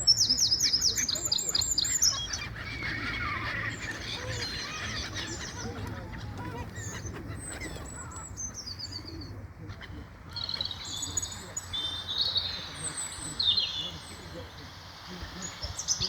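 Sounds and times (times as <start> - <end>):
seagulls squawking: 0.0 - 16.0.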